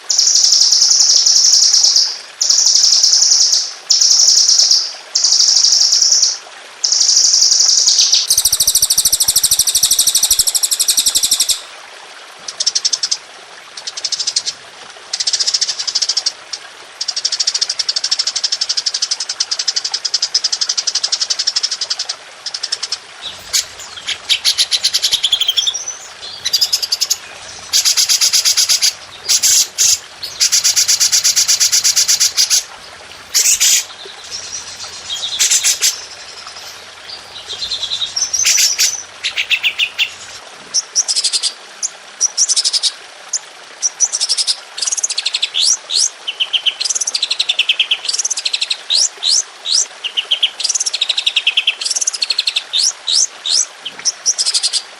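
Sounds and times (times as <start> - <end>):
songbird rapid trills: 8.3 - 11.7, 22.5 - 40.4
bird slurred whistles: 23.2 - 40.2.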